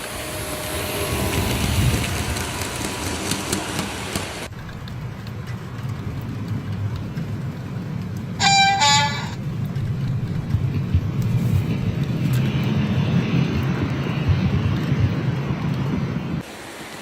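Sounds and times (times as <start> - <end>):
model train rumbling: 0.0 - 12.9
simulated rain hiss: 0.0 - 17.0
train horn toots: 8.4 - 9.4.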